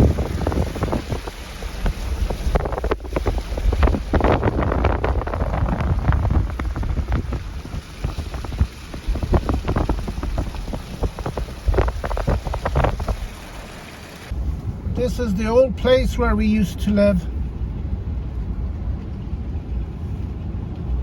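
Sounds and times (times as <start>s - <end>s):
wind buffeting the microphone: 0.0s - 13.7s.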